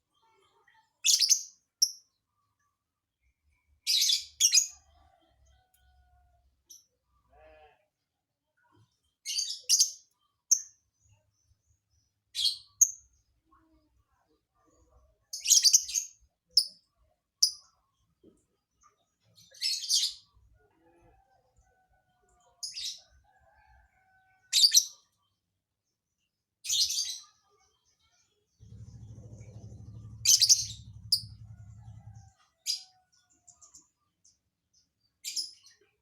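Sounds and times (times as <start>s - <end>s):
low buzzing hum: 28.6s - 32.3s.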